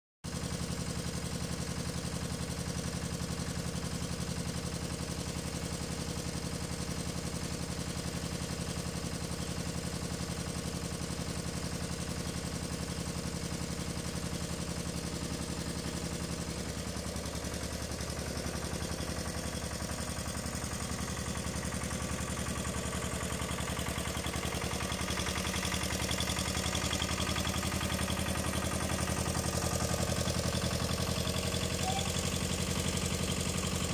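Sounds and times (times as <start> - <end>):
tractor engine idling: 0.3 - 33.9.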